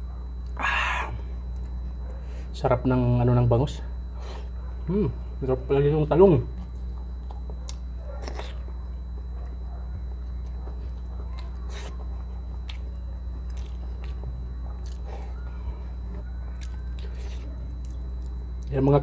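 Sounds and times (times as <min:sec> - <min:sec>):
low hum: 0:00.0 - 0:19.0
chewing soft food: 0:06.5 - 0:18.8.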